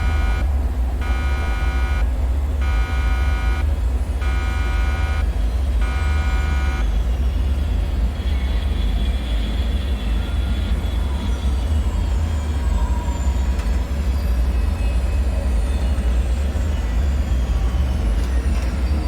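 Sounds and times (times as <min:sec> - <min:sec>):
buzzing electronic alarm beeps: 0:00.0 - 0:07.2
deep rumbling drone: 0:00.0 - 0:08.5.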